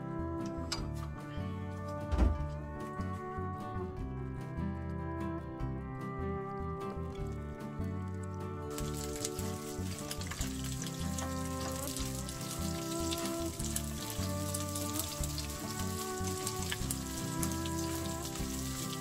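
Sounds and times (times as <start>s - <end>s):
background music with bass line: 0.0s - 19.0s
food sizzling in a pan: 8.7s - 19.0s.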